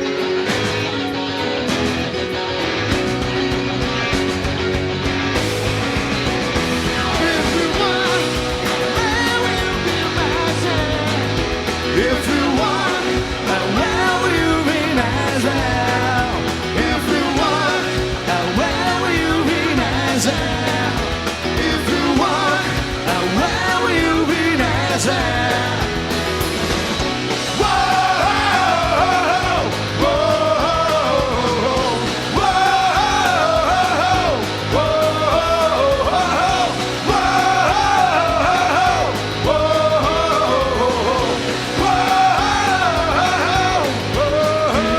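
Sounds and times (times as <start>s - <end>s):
live rock band playing: 0.0s - 44.9s
person singing: 6.9s - 26.2s, 27.5s - 44.9s.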